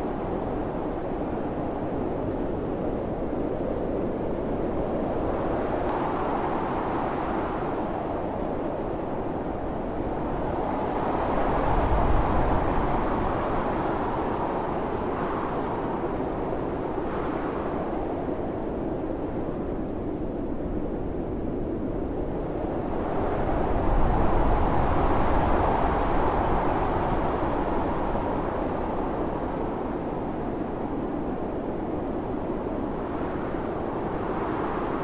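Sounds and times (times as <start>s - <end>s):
blizzard wind gusting: 0.0s - 35.0s.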